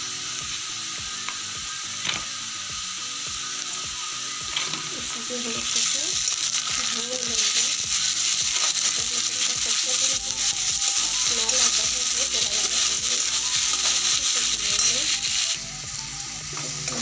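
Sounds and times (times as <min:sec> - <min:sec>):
onions sizzling in hot oil: 0:00.0 - 0:17.0
metal spatula stirring: 0:06.4 - 0:15.1.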